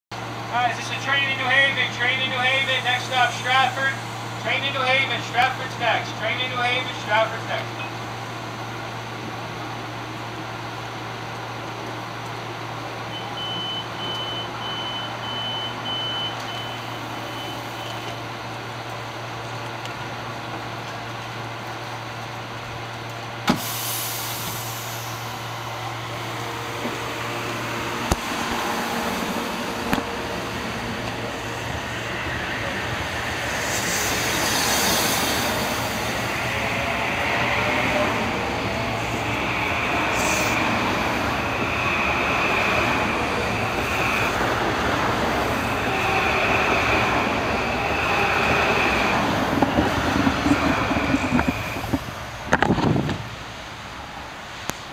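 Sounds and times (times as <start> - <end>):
train equipment humming: 0.1 - 54.8
train motors whining: 23.0 - 53.4
train doors clunking shut: 23.4 - 24.6.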